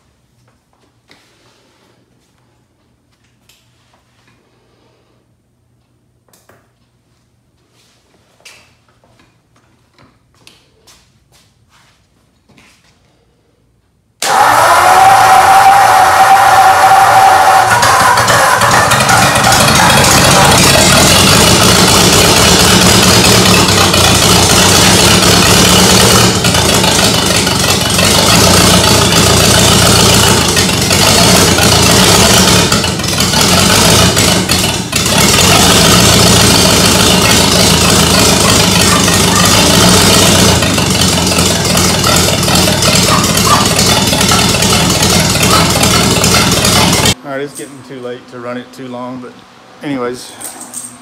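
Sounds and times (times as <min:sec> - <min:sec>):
car engine running: 0:14.3 - 0:47.2.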